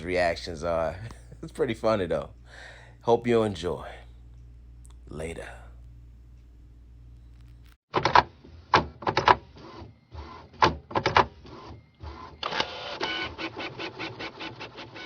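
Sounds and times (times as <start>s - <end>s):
faint whine: 0.0s - 7.8s.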